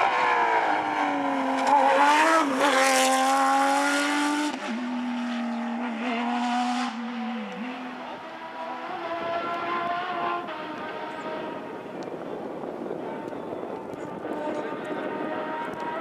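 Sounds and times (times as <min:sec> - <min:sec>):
rally car engine at speed: 0:00.0 - 0:16.0.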